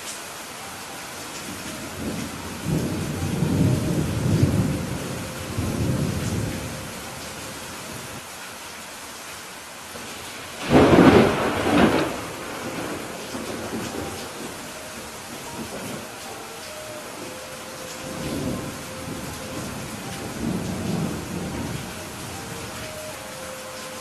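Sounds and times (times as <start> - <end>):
steady rain: 0.0 - 24.0
rolling thunder rumble: 1.9 - 7.2, 10.6 - 16.2, 18.0 - 22.9
loud thunderclap: 10.6 - 14.4.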